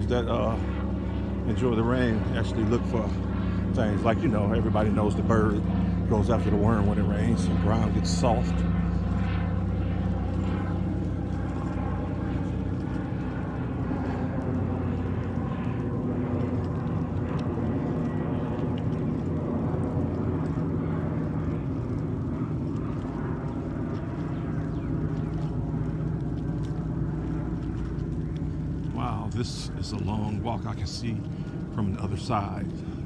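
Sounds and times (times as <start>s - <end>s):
distant engine drone: 0.0s - 33.0s.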